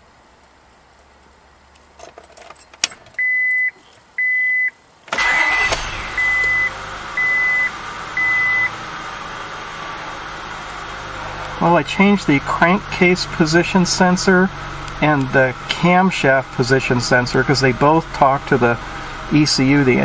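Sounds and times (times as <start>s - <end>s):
car warning chime beeping: 3.2s - 8.8s
car engine cranking and starting: 5.1s - 20.0s
car engine idling: 5.1s - 20.0s.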